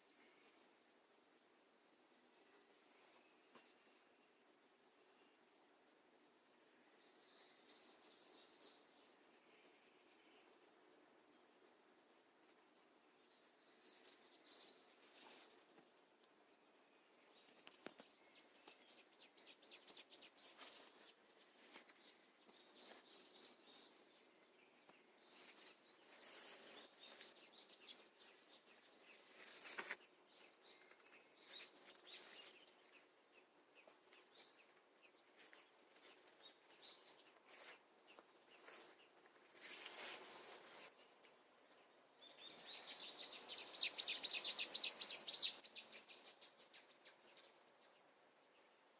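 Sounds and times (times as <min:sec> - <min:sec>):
birds chirping and trilling: 0:16.4 - 0:48.8.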